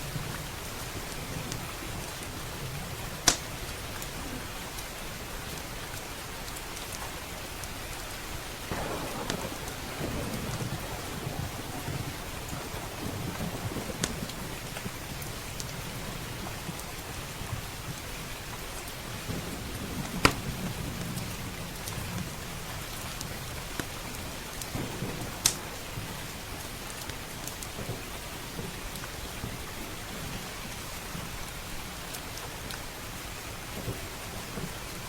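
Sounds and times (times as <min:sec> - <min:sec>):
steady rain: 0:00.0 - 0:35.0
wood fire crackling and popping: 0:00.1 - 0:33.0
low rumbling thunder: 0:08.3 - 0:31.4.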